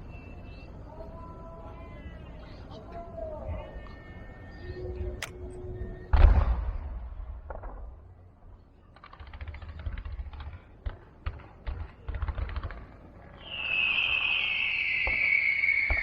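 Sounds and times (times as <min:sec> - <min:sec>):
firecrackers crackling: 0:08.9 - 0:16.0.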